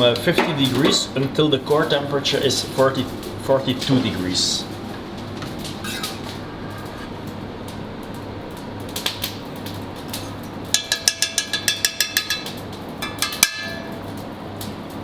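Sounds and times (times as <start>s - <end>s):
kitchen ventilation hum: 0.0s - 15.0s
metal utensils clinking: 10.2s - 14.0s.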